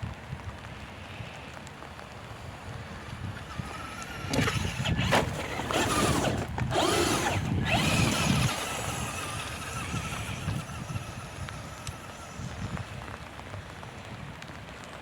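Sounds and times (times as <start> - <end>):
rc truck motor whining: 3.0 - 13.3.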